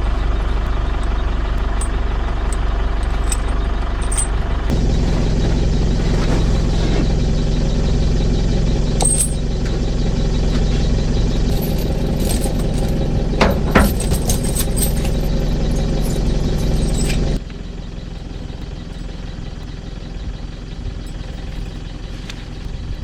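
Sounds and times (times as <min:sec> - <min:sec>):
vehicle engine running: 0:00.0 - 0:23.0
light clicks or rattles: 0:01.7 - 0:04.4.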